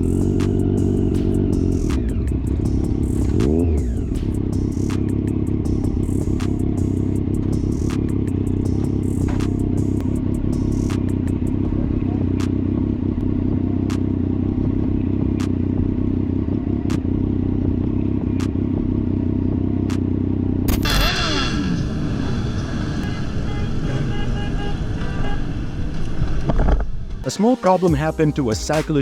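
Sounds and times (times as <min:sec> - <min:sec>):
sharp ticks: 0:00.0 - 0:11.6, 0:12.4 - 0:14.1, 0:15.4 - 0:15.7, 0:16.9 - 0:17.1, 0:18.4 - 0:18.6
motorcycle engine running: 0:00.0 - 0:25.8
vehicles passing and revving: 0:00.0 - 0:29.0.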